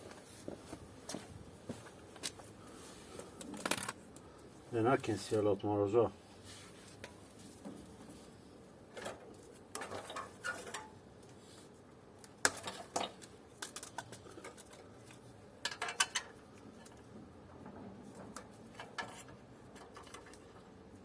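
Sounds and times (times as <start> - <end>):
metal parts and tools clinking: 9.8 - 11.0, 15.6 - 17.0.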